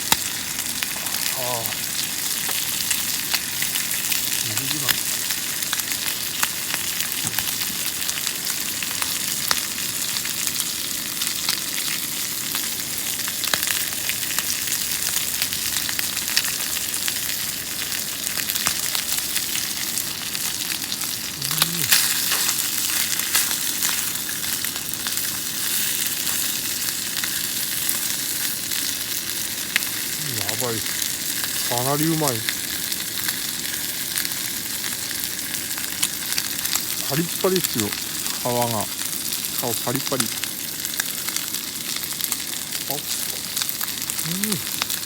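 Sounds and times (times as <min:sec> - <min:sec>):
fat popping and crackling: 0:00.0 - 0:10.1, 0:12.6 - 0:32.7, 0:35.9 - 0:41.4
food sizzling in a pan: 0:00.0 - 0:45.0.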